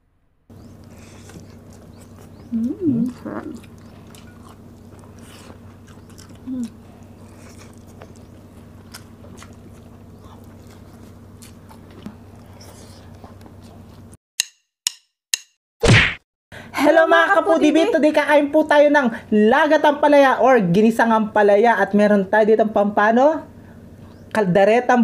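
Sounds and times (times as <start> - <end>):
steady low hum: 0.0 - 14.2
chewing and mouth clicks: 0.6 - 14.2.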